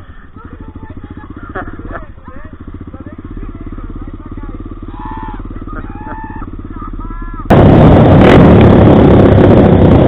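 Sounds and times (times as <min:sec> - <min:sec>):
motorcycle engine running: 0:00.0 - 0:10.0
wind rush while riding: 0:07.5 - 0:10.0.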